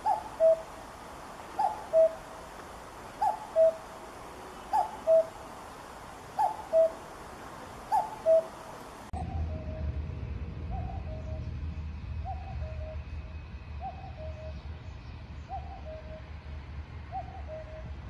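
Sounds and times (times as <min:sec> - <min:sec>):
cuckoo calling: 0:00.0 - 0:05.6, 0:06.3 - 0:09.8, 0:12.3 - 0:13.1, 0:13.8 - 0:14.6, 0:15.5 - 0:16.3, 0:17.1 - 0:18.0
steady hiss: 0:00.0 - 0:09.2.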